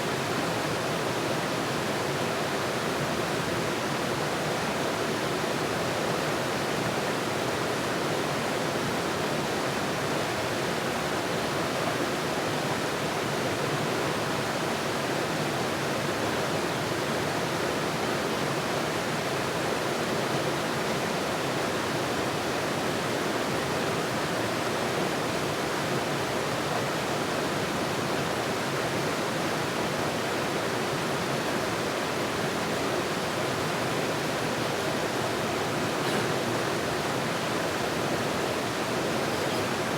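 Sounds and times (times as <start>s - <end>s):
rushing water: 4.2s - 39.9s.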